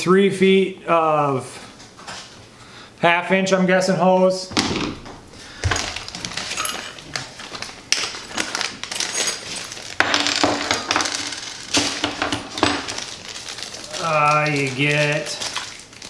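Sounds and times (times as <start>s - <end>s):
hose fittings being handled: 5.6s - 15.7s
packaging rustling: 5.6s - 16.0s
light metallic clinks: 5.8s - 7.2s, 8.0s - 9.8s.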